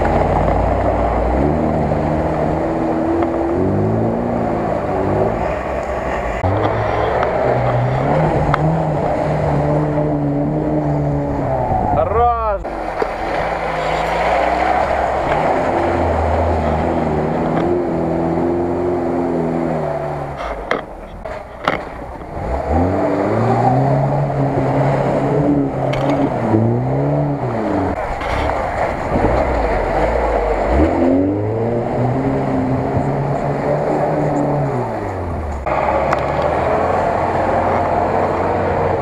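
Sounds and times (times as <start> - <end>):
car engines revving hard: 0.0 - 39.0
water and mud splashing: 12.6 - 39.0.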